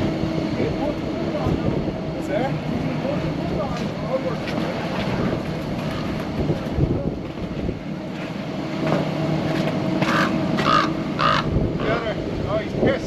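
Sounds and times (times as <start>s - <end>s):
wind on microphone: 0.0s - 8.3s, 10.1s - 13.0s
low hum: 0.0s - 13.0s
ship and port machinery drone: 0.0s - 13.0s
raven croaking: 10.0s - 12.2s.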